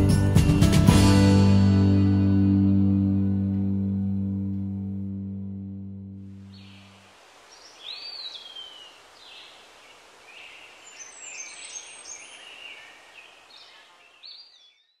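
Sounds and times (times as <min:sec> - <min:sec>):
steady outdoor hiss: 0:06.2 - 0:14.7
faint birdsong: 0:06.3 - 0:15.0.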